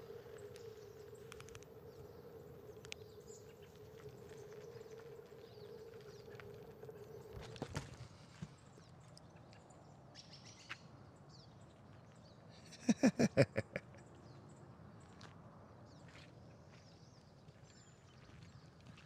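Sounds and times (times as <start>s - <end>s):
birds chirping: 0.0s - 15.2s
harsh bird calls: 12.5s - 14.0s.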